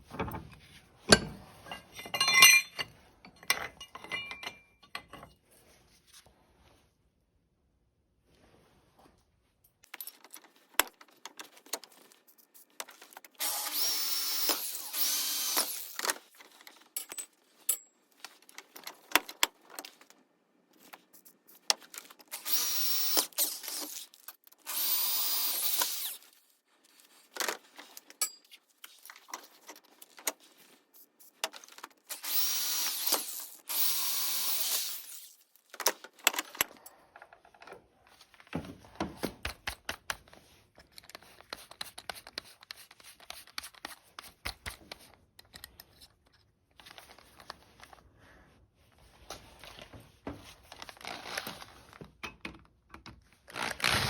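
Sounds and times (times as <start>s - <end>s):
tool handling clicks and knocks: 0.0s - 5.4s
power drill running: 13.4s - 16.0s, 22.3s - 23.8s, 24.7s - 26.2s, 32.1s - 35.2s.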